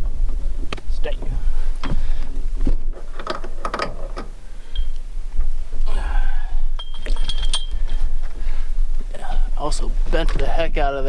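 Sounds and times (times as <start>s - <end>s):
metal chain clinking: 3.0s - 5.0s, 6.8s - 8.4s.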